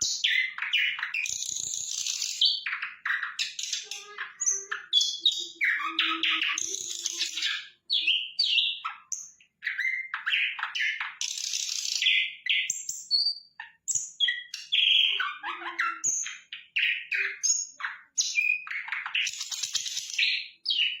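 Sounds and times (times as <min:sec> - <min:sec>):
flycatcher song: 0:03.4 - 0:08.6.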